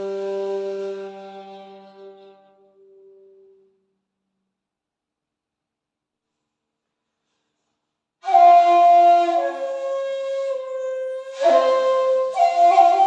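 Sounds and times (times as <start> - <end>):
breathy bamboo flute: 0.0 - 3.8, 8.2 - 13.0.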